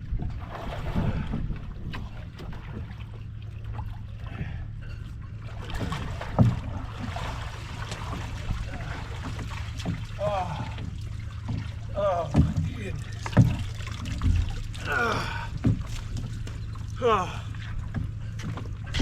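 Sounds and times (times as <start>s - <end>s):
gear knocking against hull: 0.0s - 19.0s
low rumble: 0.0s - 19.0s
water sloshing and dripping: 0.0s - 19.0s.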